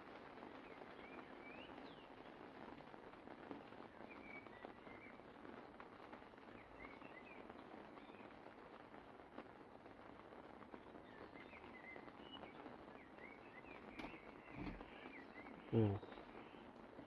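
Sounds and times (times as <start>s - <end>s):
faint light rain: 0.0s - 17.0s
small birds chirping: 10.9s - 17.0s.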